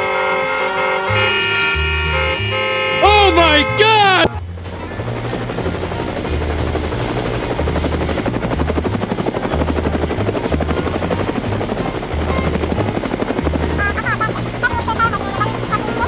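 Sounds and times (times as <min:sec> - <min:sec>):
cartoon helicopter rotor chopping: 0:00.0 - 0:16.0
low bass background music: 0:01.1 - 0:16.0.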